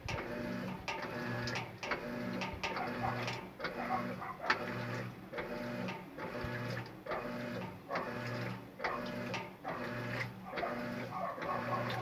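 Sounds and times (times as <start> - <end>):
washing machine motor humming: 0.0 - 12.0.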